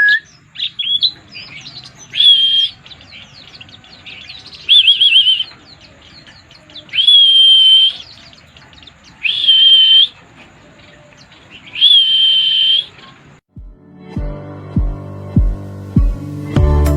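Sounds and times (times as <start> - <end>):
bird high whistles: 0.0 - 2.8, 4.6 - 5.6, 6.9 - 8.2, 9.2 - 10.2, 11.7 - 13.1
faint bird twittering: 0.0 - 13.4
music: 13.5 - 16.9.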